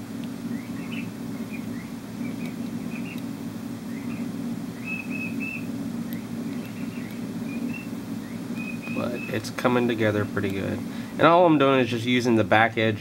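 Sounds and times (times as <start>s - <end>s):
steady low hum: 0.0s - 13.0s
small bird chirping: 0.4s - 11.2s.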